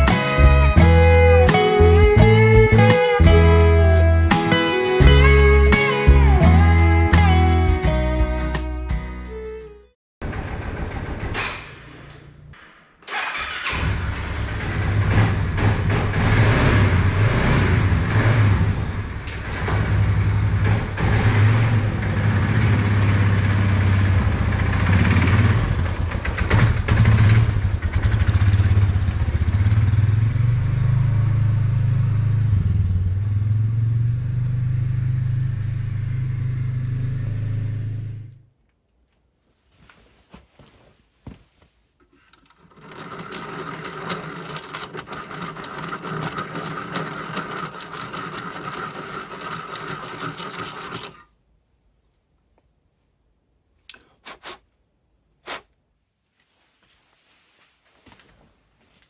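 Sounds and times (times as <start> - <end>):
atv engine revving: 0.0 - 7.6, 13.1 - 38.4, 42.8 - 51.2.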